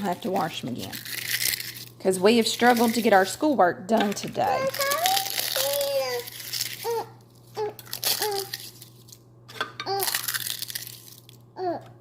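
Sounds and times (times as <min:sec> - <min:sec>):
eggshells crackling: 0:00.0 - 0:09.2, 0:09.9 - 0:11.5
child vocal sounds: 0:04.4 - 0:08.6, 0:09.8 - 0:10.3, 0:11.6 - 0:12.0.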